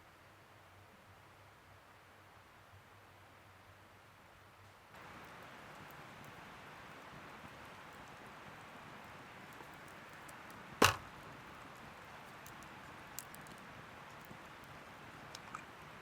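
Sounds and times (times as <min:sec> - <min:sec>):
faint hiss: 0:00.0 - 0:16.0
sharp snap or knock: 0:10.8 - 0:11.1.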